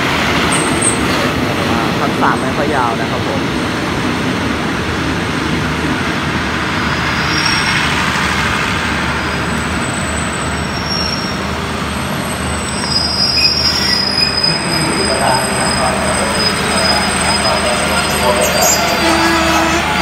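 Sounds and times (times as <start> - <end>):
train coaches rumbling: 0.0 - 20.0
high-pitched wheel squeal: 7.1 - 8.1, 9.2 - 11.5, 12.6 - 20.0.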